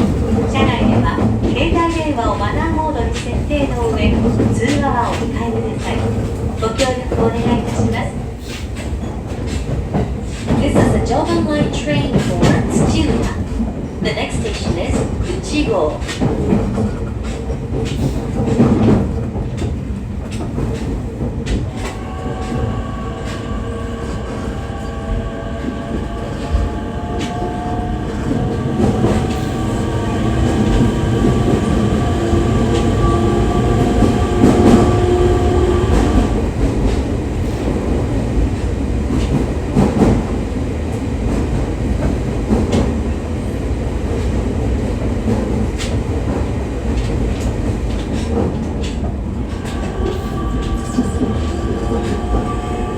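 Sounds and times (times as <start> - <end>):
rail clicks: 0.0 - 52.9
train wheel and track rumble: 0.0 - 52.9
train motor whine: 21.7 - 36.6, 49.3 - 52.9.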